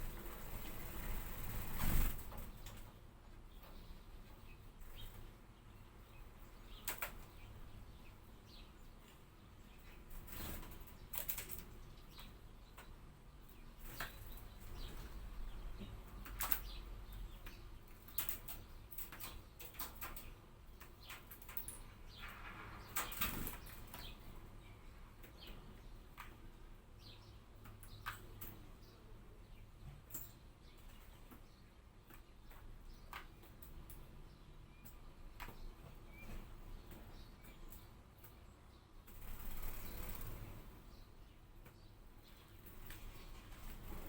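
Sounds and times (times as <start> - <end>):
wing flutters: 0.0 - 2.9, 39.1 - 40.9.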